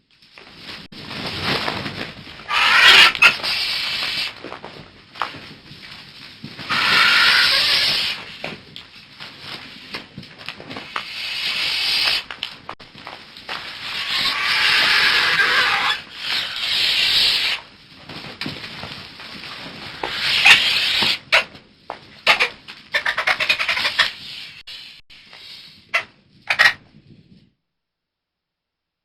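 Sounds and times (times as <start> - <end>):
birds squawking harshly: 2.5 - 4.3, 6.7 - 8.4, 13.7 - 17.6, 19.9 - 21.5, 22.3 - 24.4, 26.0 - 26.8.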